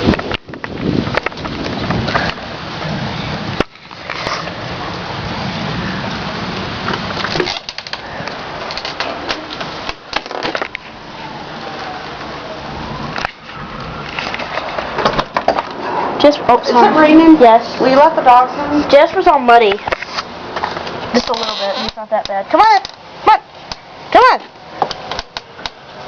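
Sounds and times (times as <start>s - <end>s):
wind noise: 0.0s - 11.9s
rain falling: 0.0s - 19.7s
raindrops hitting microphone: 0.0s - 26.0s.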